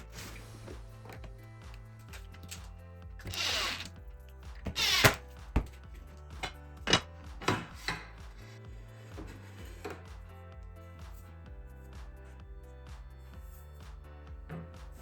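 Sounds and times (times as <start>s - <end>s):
tool rasping: 0.0s - 10.3s
background music with bass line: 0.0s - 15.0s.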